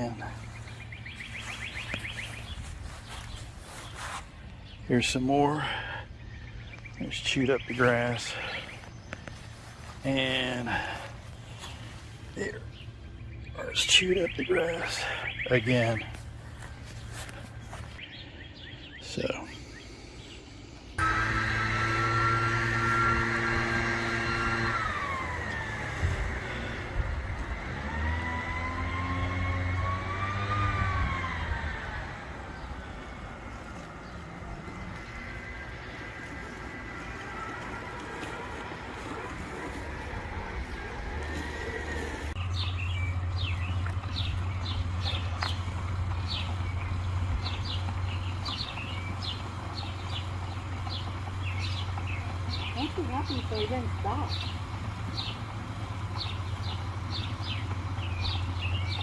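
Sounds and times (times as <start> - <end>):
robotic lawn mower motor whine: 0.0 - 4.2, 20.9 - 59.0
birds chirping: 0.0 - 59.0
steady low hum: 0.0 - 59.0.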